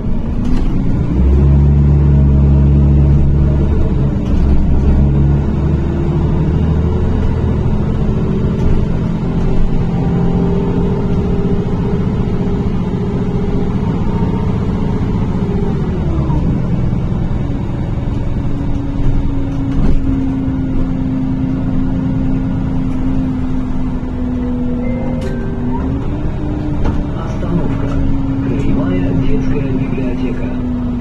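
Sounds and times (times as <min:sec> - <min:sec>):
bus engine running: 0:00.0 - 0:31.0
steady whine: 0:22.9 - 0:31.0.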